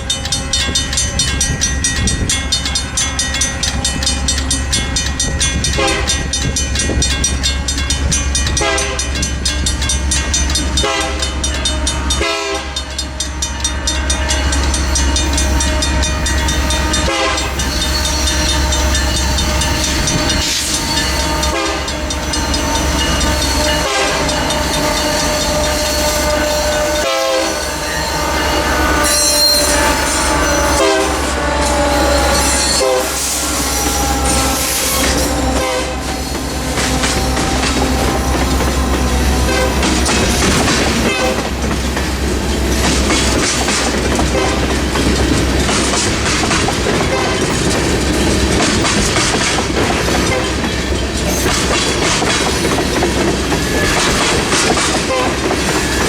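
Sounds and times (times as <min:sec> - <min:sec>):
wheels clicking over rail joints: 0:00.0 - 0:27.2, 0:27.9 - 0:56.0
train horn chords: 0:05.6 - 0:06.4, 0:08.5 - 0:09.2, 0:10.5 - 0:41.7, 0:44.0 - 0:45.2.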